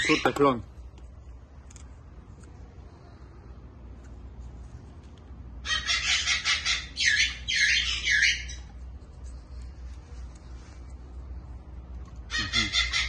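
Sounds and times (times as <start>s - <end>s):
bird chattering and squawking: 0.0s - 0.6s, 5.6s - 8.8s, 12.2s - 13.0s.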